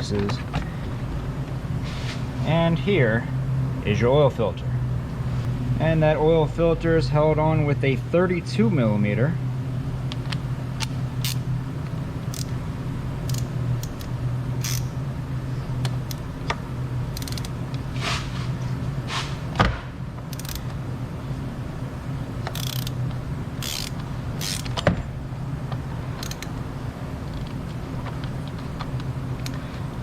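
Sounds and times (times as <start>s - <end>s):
steady low hum: 0.0s - 30.0s
sharp knocks: 19.6s - 20.0s.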